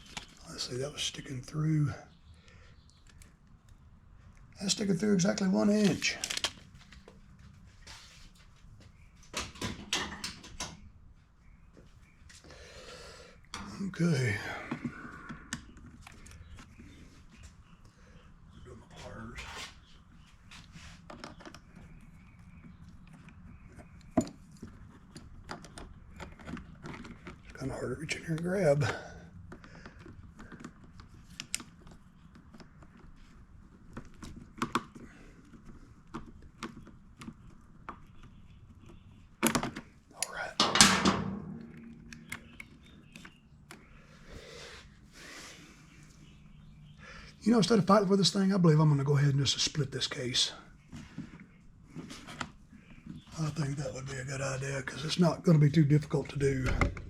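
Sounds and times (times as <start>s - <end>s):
soft rustling: 5.8s - 9.2s.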